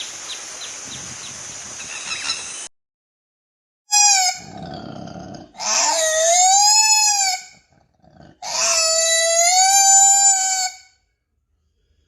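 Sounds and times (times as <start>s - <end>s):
animal calling: 3.9s - 10.9s.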